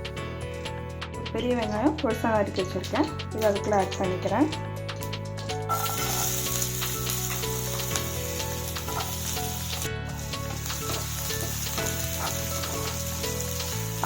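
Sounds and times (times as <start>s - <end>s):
onions sizzling in oil: 5.7s - 14.0s.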